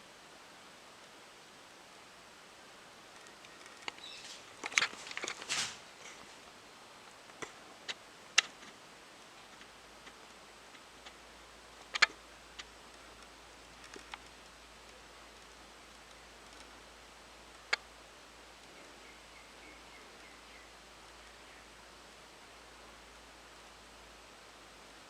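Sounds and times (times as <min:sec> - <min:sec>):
faint steady hiss: 0:00.0 - 0:25.0
light clicks and ticks: 0:03.1 - 0:05.4, 0:09.4 - 0:16.8.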